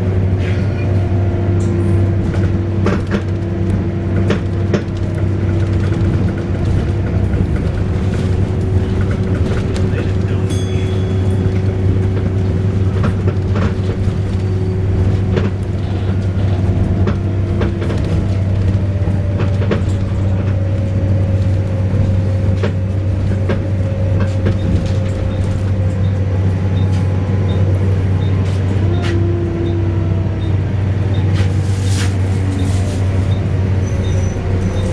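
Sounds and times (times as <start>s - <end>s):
bus diesel engine drone: 0.0s - 34.9s
bus wailing whine: 0.0s - 34.9s.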